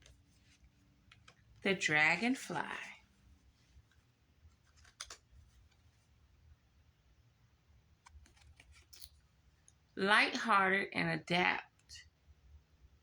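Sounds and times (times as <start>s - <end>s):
cards rustling and clicking: 3.9s - 6.0s, 8.0s - 9.1s.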